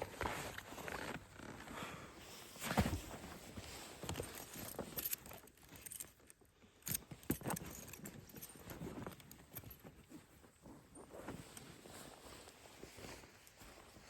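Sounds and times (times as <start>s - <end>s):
metallic clinks and knocks: 4.1s - 10.0s
rustling: 6.9s - 14.0s.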